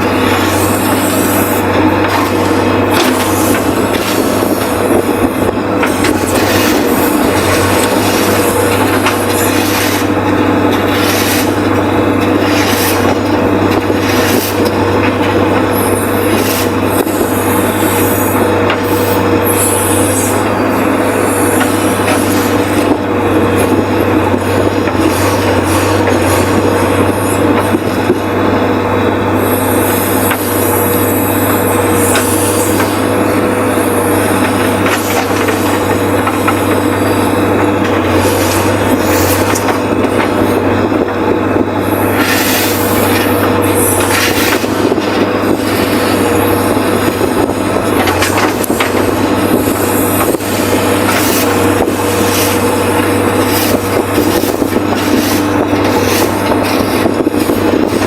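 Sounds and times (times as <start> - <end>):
diesel engine running under load: 0.0 - 58.0
engine whine: 0.0 - 58.0
bucket scraping earth: 5.8 - 11.6, 12.2 - 15.4, 49.6 - 58.0.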